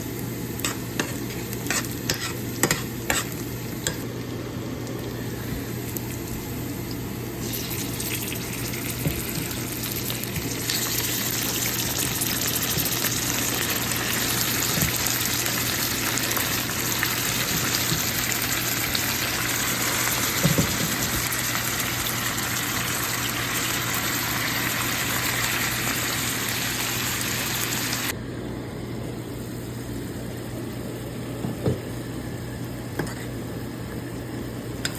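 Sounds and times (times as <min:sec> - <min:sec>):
meat sizzling in hot oil: 0:00.0 - 0:28.1.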